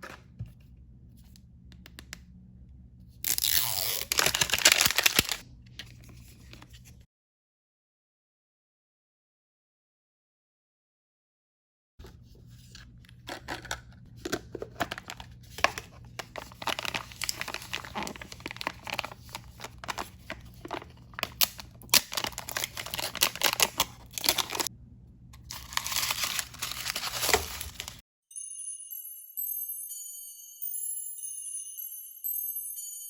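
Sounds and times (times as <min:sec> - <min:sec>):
plastic packaging crinkling and tearing: 0:03.2 - 0:06.0, 0:13.2 - 0:24.7, 0:25.4 - 0:28.0
jingly tinkling music: 0:28.2 - 0:33.0.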